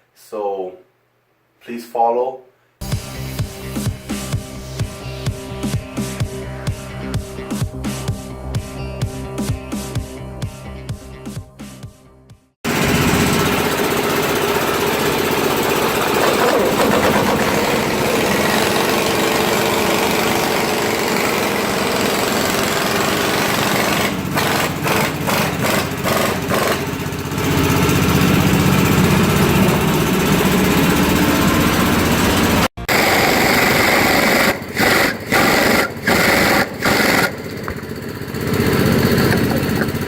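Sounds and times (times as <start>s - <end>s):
motor running loudly: 12.7s - 40.0s.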